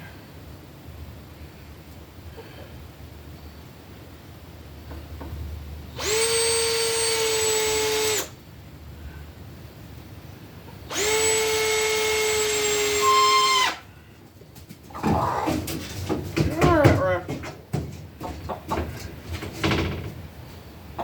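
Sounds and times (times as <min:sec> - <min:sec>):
power drill whining: 0:06.0 - 0:08.4, 0:10.9 - 0:13.8.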